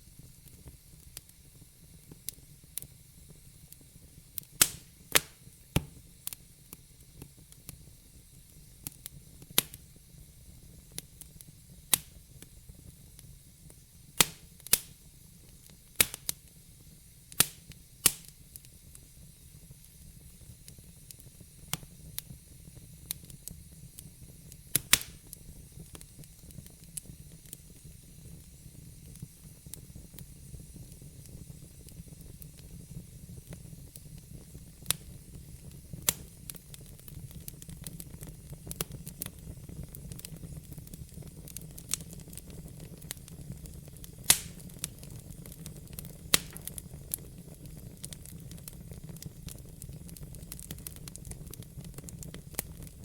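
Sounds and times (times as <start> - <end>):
fire crackling: 0.0 - 53.0
log fire rumbling and hissing: 0.0 - 53.0
burning wood popping: 3.8 - 7.8, 8.8 - 9.8, 11.0 - 12.6, 13.7 - 16.4, 17.3 - 19.1, 23.0 - 53.0.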